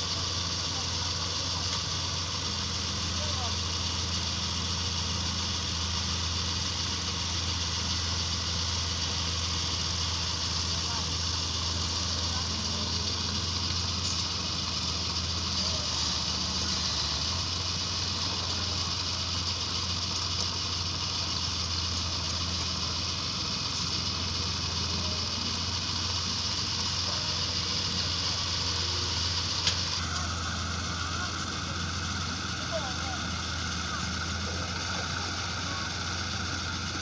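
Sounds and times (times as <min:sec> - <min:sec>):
constant hiss: 0:00.0 - 0:37.0
heavy machinery engine droning: 0:00.0 - 0:37.0.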